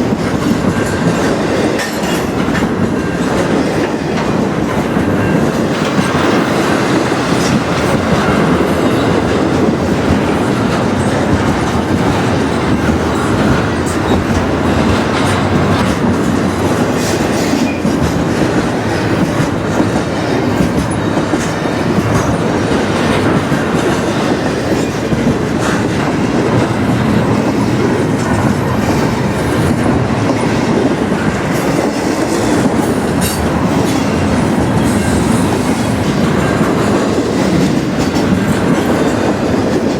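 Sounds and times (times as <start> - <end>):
steel wheels clattering on track: 0.0 - 39.9
train rumbling past: 0.0 - 39.9.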